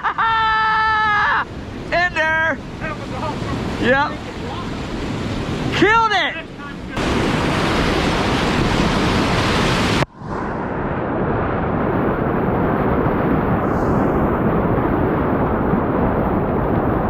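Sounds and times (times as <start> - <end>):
wind buffeting microphone: 0.9 - 17.0
whitewater rushing: 1.5 - 10.0.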